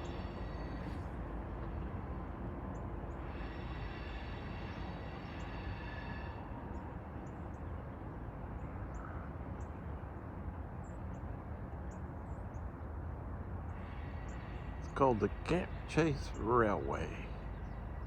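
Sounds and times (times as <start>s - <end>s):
distant diesel train rumble: 0.0s - 18.0s.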